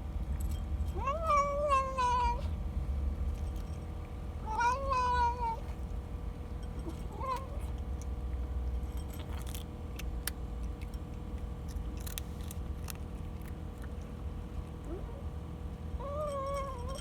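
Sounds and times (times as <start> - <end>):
cat meowing: 1.0 - 2.5, 4.4 - 5.7, 7.1 - 7.6
small metallic jingles: 6.4 - 13.0, 16.0 - 17.0.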